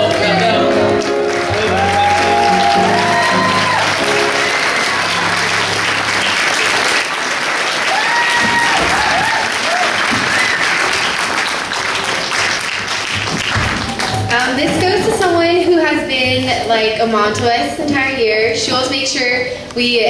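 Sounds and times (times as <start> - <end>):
background music chords: 0.0 - 6.4
audience applauding: 0.0 - 15.1
crowd shouting: 1.5 - 5.7, 7.9 - 10.5.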